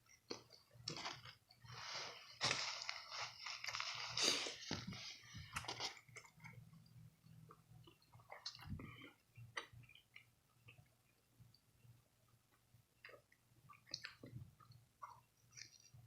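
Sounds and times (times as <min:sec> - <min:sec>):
person chewing crunchy food: 0:00.0 - 0:06.8, 0:13.0 - 0:16.0.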